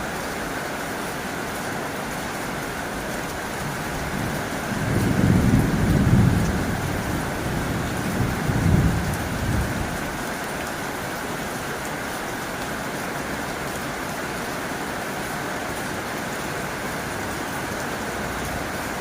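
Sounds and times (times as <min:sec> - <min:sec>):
rain on a tin roof: 0:00.0 - 0:19.0.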